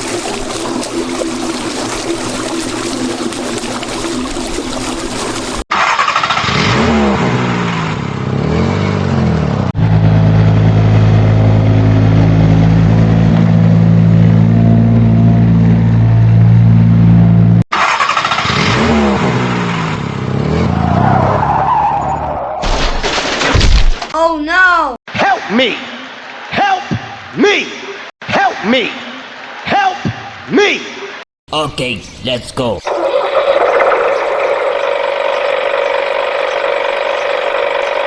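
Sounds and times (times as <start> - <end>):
vehicle engine revving: 5.8 - 21.4, 32.9 - 38.0.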